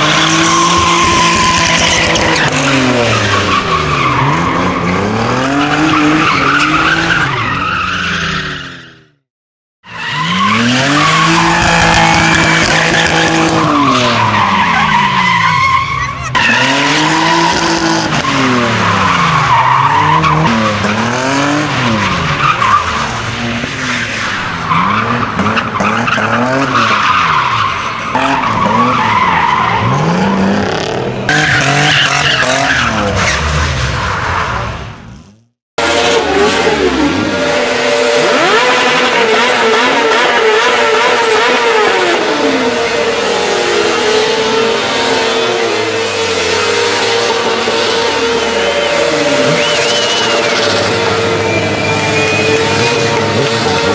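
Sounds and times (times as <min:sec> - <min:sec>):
car engine revving: 0:28.1 - 0:53.9.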